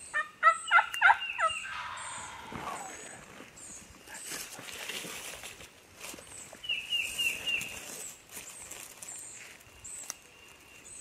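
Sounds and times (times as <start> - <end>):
small birds chirping: 0.0 - 11.0
short falling bird calls: 0.4 - 4.3
rustling: 2.5 - 10.9.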